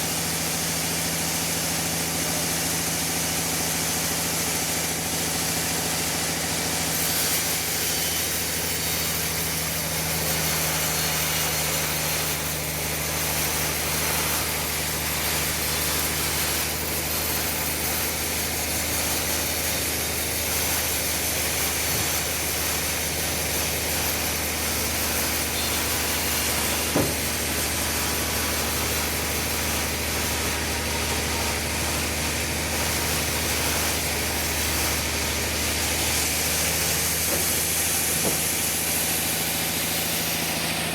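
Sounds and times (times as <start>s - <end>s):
saw hissing: 0.0s - 40.9s
sharp knock: 26.9s - 27.3s, 38.2s - 38.6s.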